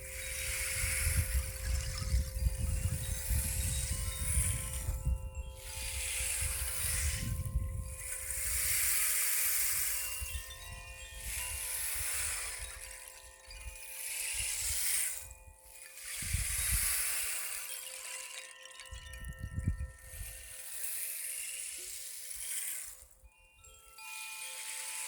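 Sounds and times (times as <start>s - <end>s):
wind buffeting microphone: 0.0s - 8.9s, 16.1s - 16.9s, 18.9s - 20.4s
chimes ringing: 0.0s - 25.0s.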